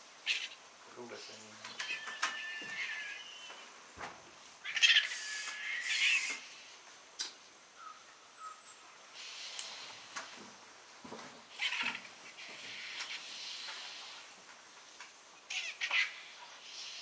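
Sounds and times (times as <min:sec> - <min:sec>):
soft hissing bird call: 0:00.1 - 0:03.8, 0:04.4 - 0:10.4, 0:11.4 - 0:17.0
harsh raspy bird call: 0:00.2 - 0:00.6, 0:01.8 - 0:03.7, 0:04.6 - 0:06.6, 0:15.5 - 0:17.0.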